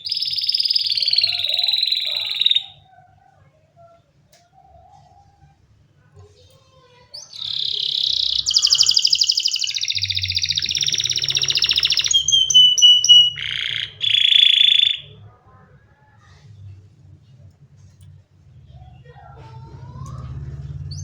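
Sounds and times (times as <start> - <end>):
canary singing: 0.0 - 3.2, 6.6 - 15.4, 18.8 - 21.0.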